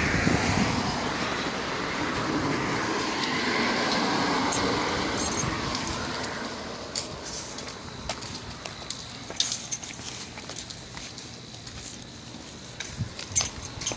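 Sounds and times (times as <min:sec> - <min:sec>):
vehicle passing: 0:00.0 - 0:08.0.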